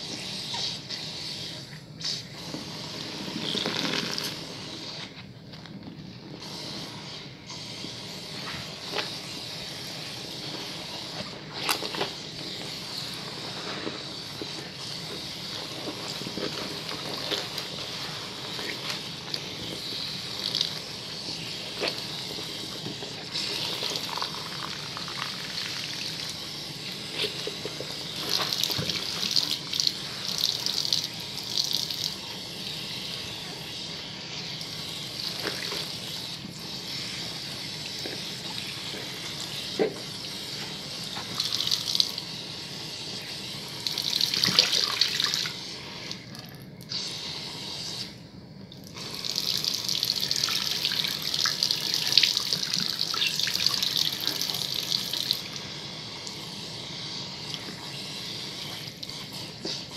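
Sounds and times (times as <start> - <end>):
hands lathering soap: 27.1 - 32.2.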